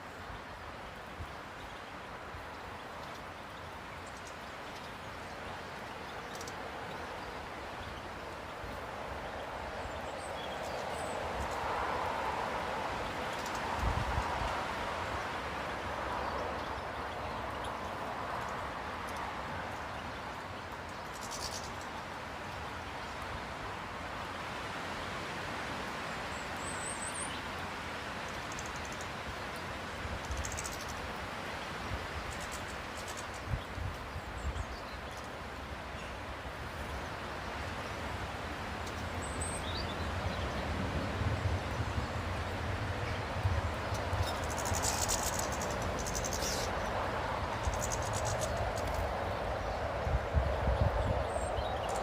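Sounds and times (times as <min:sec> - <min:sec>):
steady background hiss: 0:00.0 - 0:52.0
steady rushing noise: 0:27.6 - 0:52.0.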